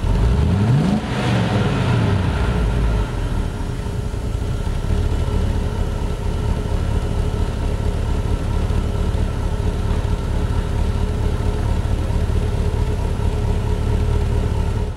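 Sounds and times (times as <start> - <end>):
car engine idling: 0.0 - 14.9.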